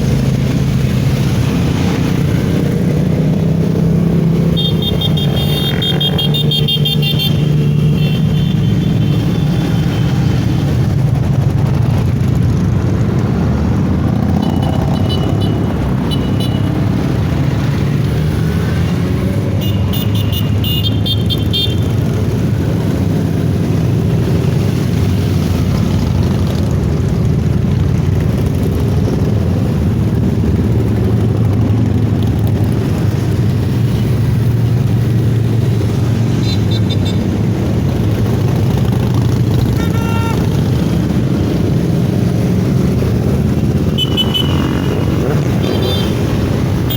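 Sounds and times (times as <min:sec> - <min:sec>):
motorcycle engine running: 0:25.6 - 0:46.9.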